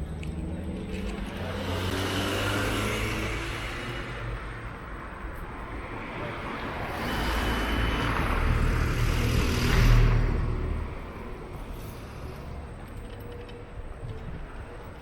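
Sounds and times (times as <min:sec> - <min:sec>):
vehicle passing by: 0:00.4 - 0:04.8, 0:05.9 - 0:12.5.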